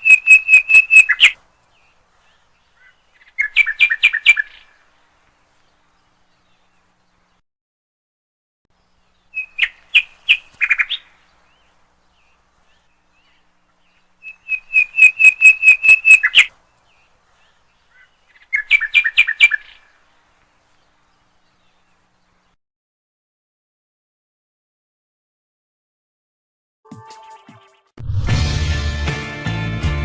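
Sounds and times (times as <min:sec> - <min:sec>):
bird singing: 0:00.0 - 0:07.4, 0:08.7 - 0:22.6.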